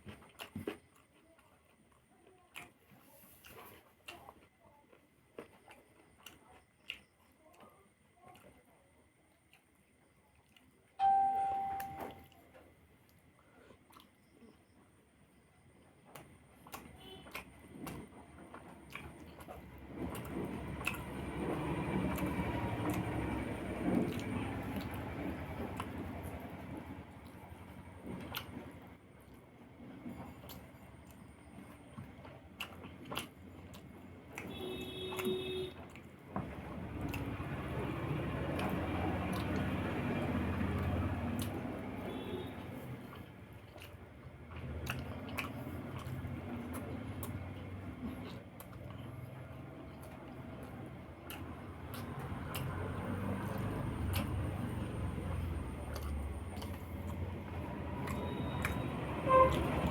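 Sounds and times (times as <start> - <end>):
close chewing: 0.0 - 59.9
brief steady tone: 11.0 - 12.4, 58.1 - 59.6
low steady hum: 11.0 - 12.6
eating mouth sounds: 42.8 - 59.9.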